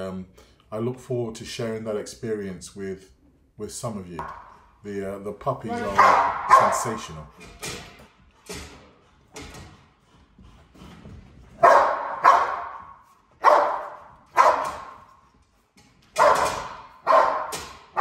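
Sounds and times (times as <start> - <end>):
dog barking with echo: 5.8 - 7.1, 11.6 - 15.0, 16.2 - 18.0.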